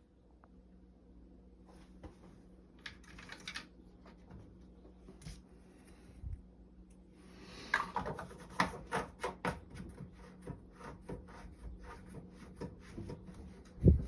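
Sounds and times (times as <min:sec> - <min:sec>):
small parts clicking and knocking: 0:02.8 - 0:03.7.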